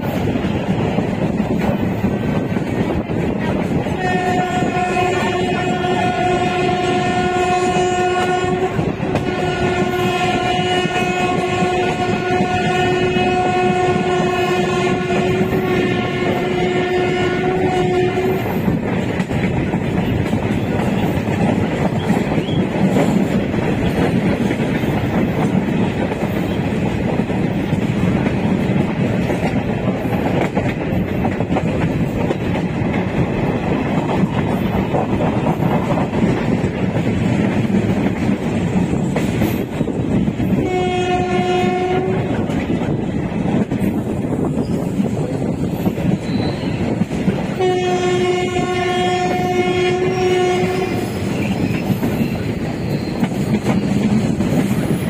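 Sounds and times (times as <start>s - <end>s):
train wheels rumbling: 0.0s - 55.0s
train horn: 3.8s - 18.7s, 40.4s - 42.6s, 47.4s - 54.0s.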